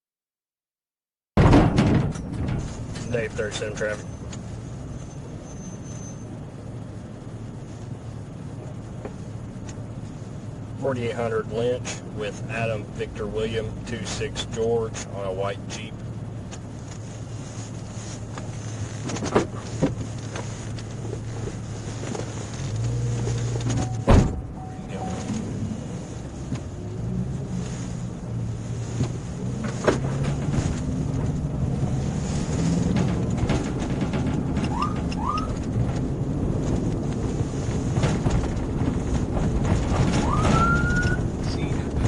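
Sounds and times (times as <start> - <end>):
car engine drone: 1.4 - 42.0
road noise: 1.4 - 42.0
short rising siren chirps: 23.8 - 26.0.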